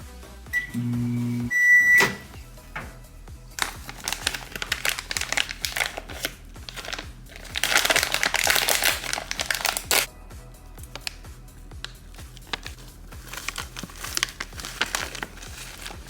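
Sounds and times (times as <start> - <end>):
background music with beat: 0.0 - 14.4
crinkling and rustling: 2.0 - 10.1, 10.8 - 11.2, 11.8 - 16.0.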